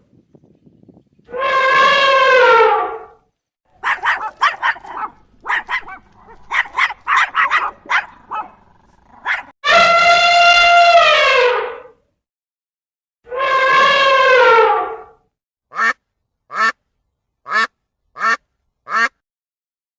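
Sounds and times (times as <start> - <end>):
dog barking: 3.7 - 9.5.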